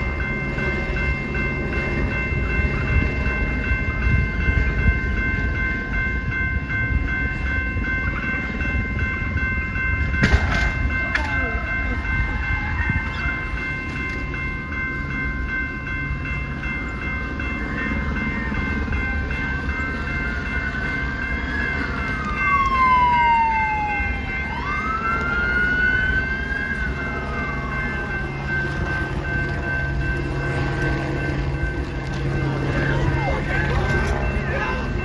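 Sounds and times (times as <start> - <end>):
train rumbling on tracks: 0.0 - 35.0
police siren wailing: 10.2 - 13.7, 17.7 - 35.0
steady high tones: 26.9 - 35.0.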